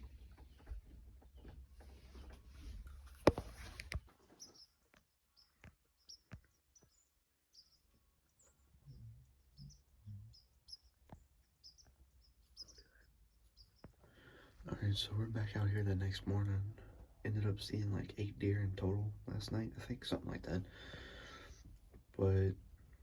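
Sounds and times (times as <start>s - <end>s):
faint bird chirps: 4.2s - 15.6s.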